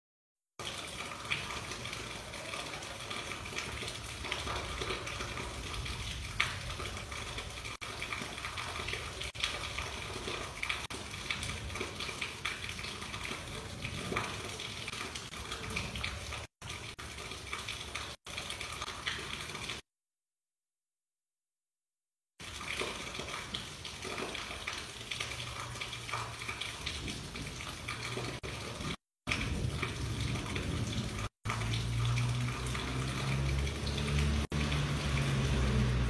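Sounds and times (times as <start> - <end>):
raindrop impacts: 0.6 - 19.8, 22.4 - 36.0
rain hissing: 27.0 - 36.0.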